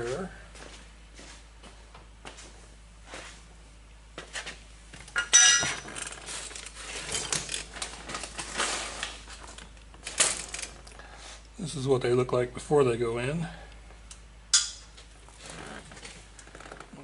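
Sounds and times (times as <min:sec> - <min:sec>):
small metal parts clinking: 0:05.1 - 0:07.8.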